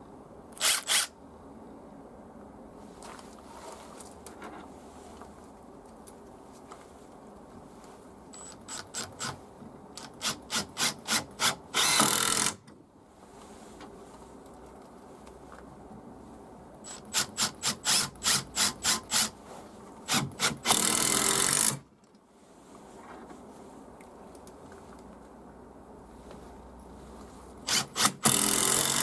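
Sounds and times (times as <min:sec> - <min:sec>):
impact driver running in bursts: 0:27.7 - 0:29.0.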